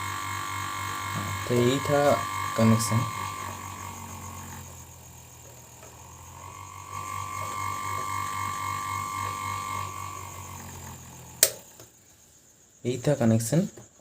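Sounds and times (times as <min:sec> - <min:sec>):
fan motor throbbing hum: 0:00.0 - 0:11.8
thin high whine: 0:00.0 - 0:13.7.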